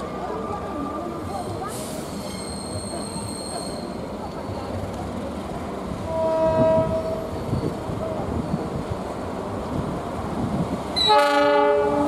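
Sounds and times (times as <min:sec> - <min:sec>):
train running on rails: 0:00.0 - 0:12.0
metallic wheel squeal: 0:02.0 - 0:04.1, 0:06.5 - 0:07.8.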